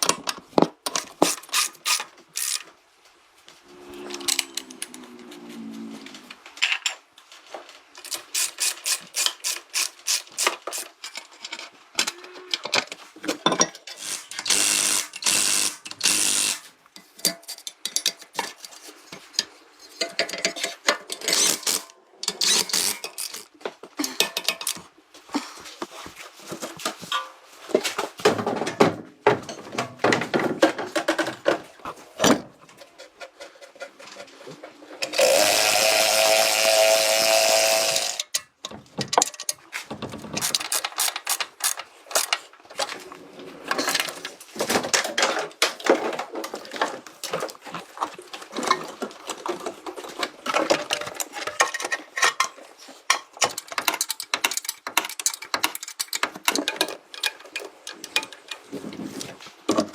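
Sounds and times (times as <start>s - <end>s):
power tool running: 35.1s - 38.2s.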